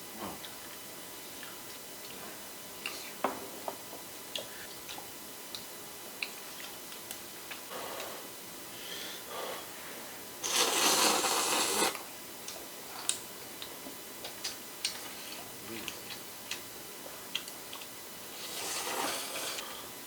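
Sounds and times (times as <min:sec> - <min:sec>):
soft chewing: 0:03.9 - 0:08.2, 0:12.4 - 0:18.0.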